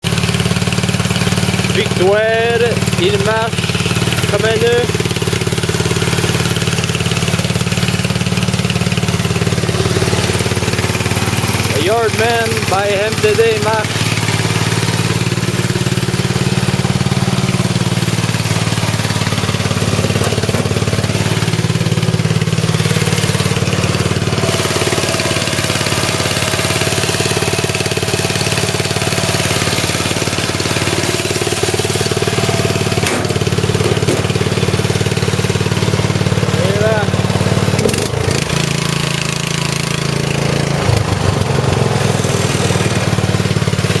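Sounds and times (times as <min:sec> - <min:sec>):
lawn tractor engine running: 0:00.0 - 0:44.0.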